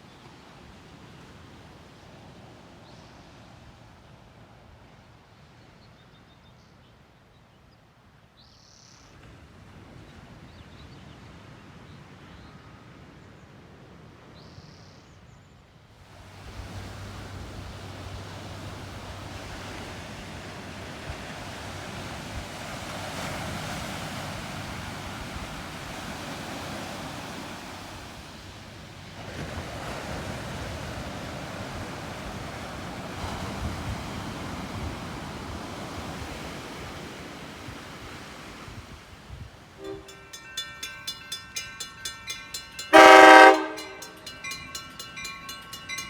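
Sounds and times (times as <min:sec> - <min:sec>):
ocean waves breaking: 0:16.0 - 0:46.0.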